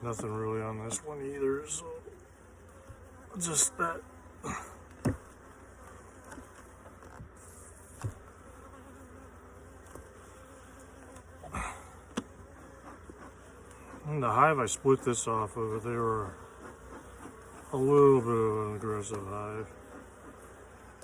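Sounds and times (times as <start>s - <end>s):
honeybees buzzing: 0.0s - 21.0s
light knocks: 4.9s - 5.3s.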